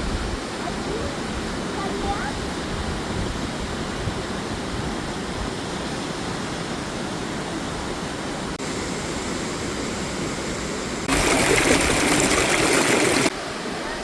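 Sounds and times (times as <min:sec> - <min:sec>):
waterfall rushing: 0:11.0 - 0:14.0.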